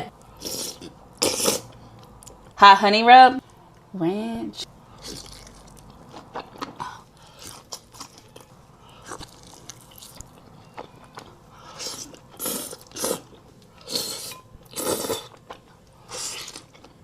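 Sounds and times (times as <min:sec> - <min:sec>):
soft chewing: 0:04.6 - 0:14.1.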